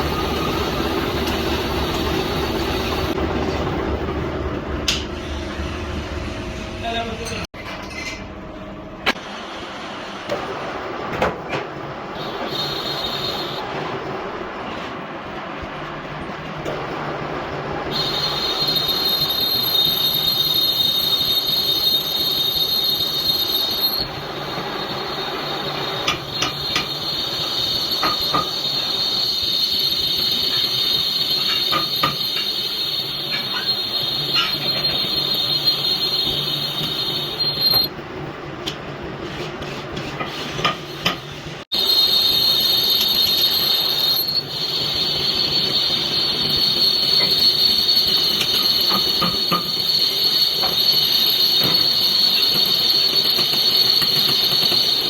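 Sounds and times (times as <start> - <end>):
lathe machine hum: 0.0 - 6.9
lathe cutting tool squealing: 18.0 - 37.9, 41.7 - 55.0.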